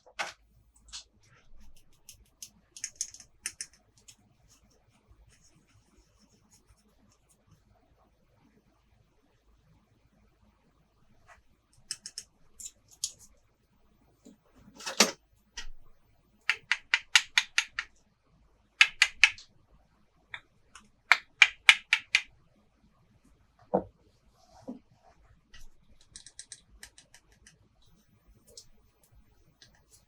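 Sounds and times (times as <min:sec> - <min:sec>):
plastic toy pieces clicking: 0:02.8 - 0:04.1.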